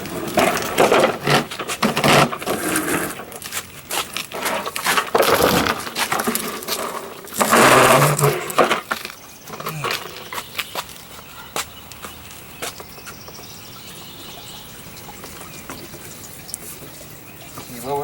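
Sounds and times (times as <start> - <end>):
lawnmower scraping and bumping: 0.0 - 14.1.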